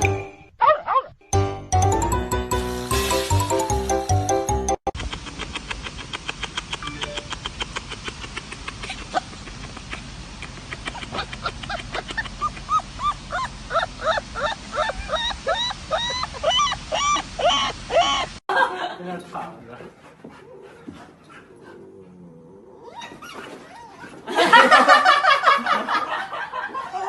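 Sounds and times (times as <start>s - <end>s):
young animals squeaky calls: 12.4s - 18.4s.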